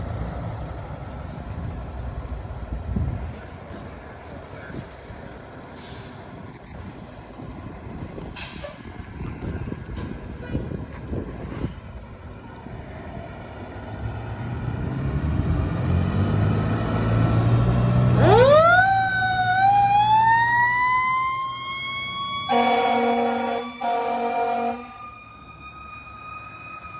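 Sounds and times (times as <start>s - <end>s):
diesel engine: 0.0s - 26.9s
siren winding up: 18.1s - 26.9s
horn blast: 22.5s - 25.0s.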